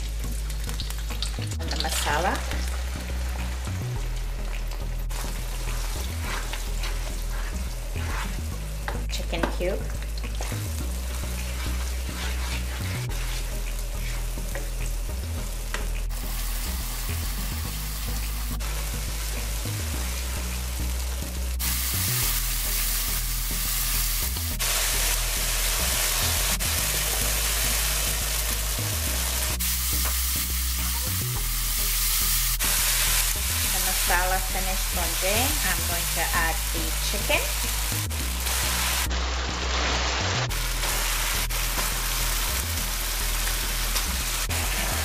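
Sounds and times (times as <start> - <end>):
paste sizzling in a wok: 0.1 - 45.0
wooden spoon scraping a pan: 5.7 - 8.4, 11.4 - 14.6.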